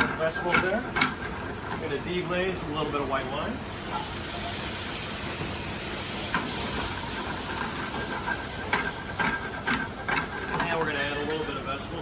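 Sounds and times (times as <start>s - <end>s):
wine sizzling in a hot skillet: 3.6s - 11.7s.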